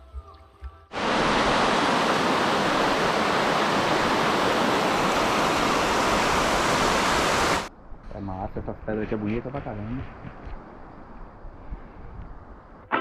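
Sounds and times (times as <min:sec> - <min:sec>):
river water rushing: 0:00.9 - 0:07.7.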